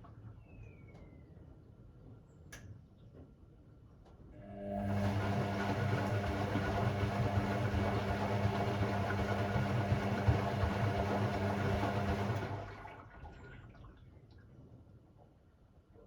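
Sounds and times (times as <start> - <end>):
washing machine hum: 4.4 - 14.4.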